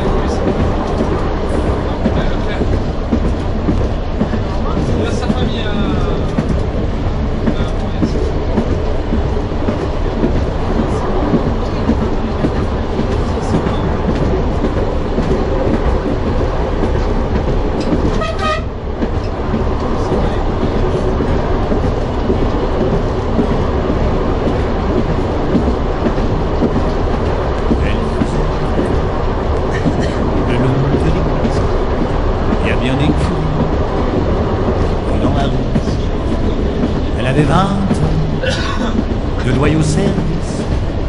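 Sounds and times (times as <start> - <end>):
train rumbling with rail clatter: 0.0 - 41.0
train horn blast: 18.1 - 18.8.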